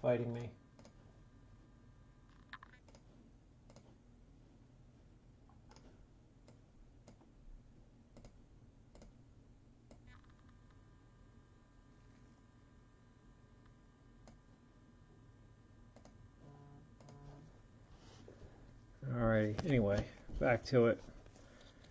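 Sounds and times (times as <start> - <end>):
faint steady tones: 0.0 - 21.9.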